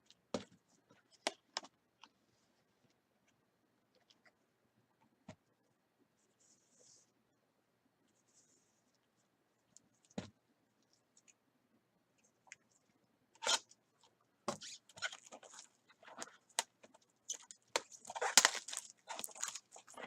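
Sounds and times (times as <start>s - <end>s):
card wrappers crinkling: 17.3s - 20.0s.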